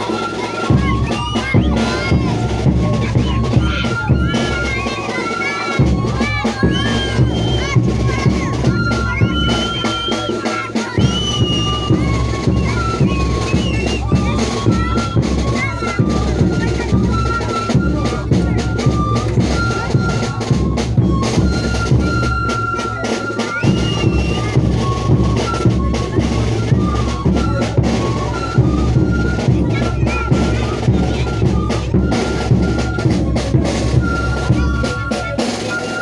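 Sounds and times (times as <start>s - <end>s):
live band music: 0.0s - 36.0s
steady drumming: 0.0s - 36.0s.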